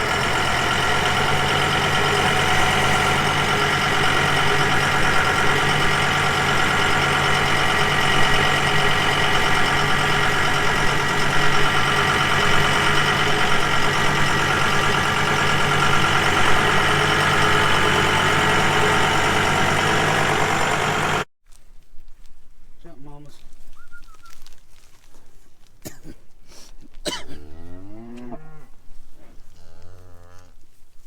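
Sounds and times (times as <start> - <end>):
tractor engine running: 0.0 - 21.3.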